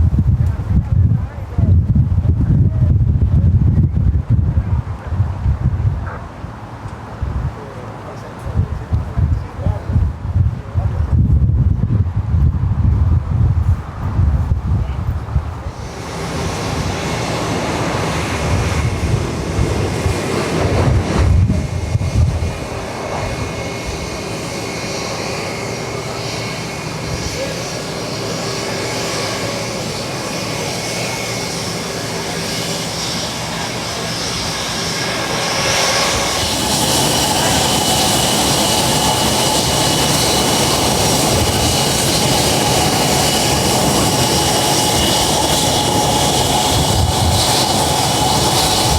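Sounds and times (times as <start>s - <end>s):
wind buffeting microphone: 0.0s - 48.9s
jet engines whining: 14.7s - 48.9s.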